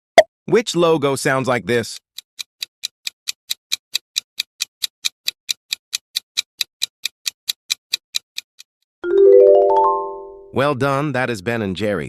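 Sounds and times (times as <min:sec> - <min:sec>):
clock-like timer ticks: 0:01.1 - 0:08.8.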